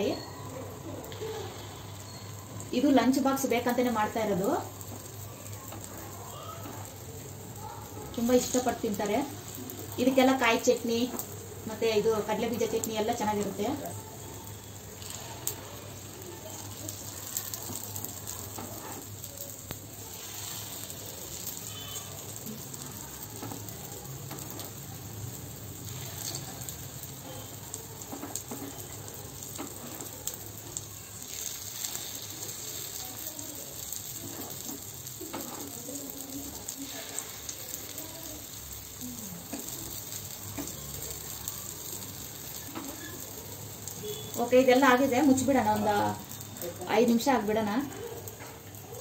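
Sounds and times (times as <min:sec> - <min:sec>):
batter sizzling in hot oil: 0:00.0 - 0:49.0.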